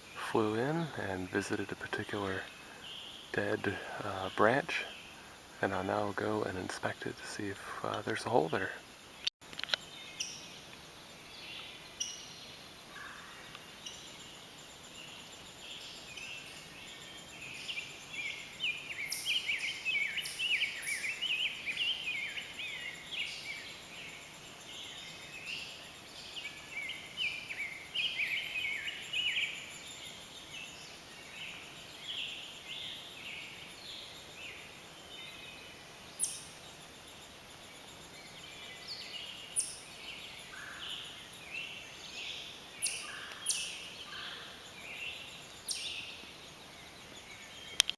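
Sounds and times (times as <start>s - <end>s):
nestlings begging chatter: 0.2s - 8.8s.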